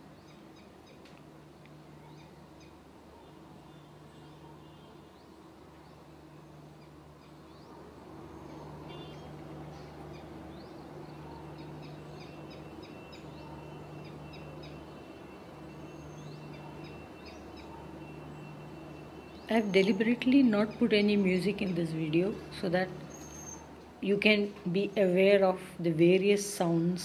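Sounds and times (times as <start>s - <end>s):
small bird chirping: 6.7s - 21.9s, 23.1s - 23.7s.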